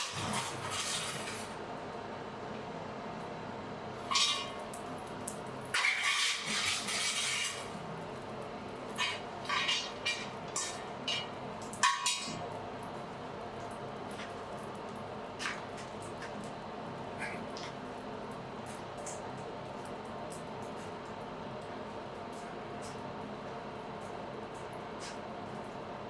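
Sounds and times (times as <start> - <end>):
metal scraping: 0.0 - 1.6, 5.8 - 7.7.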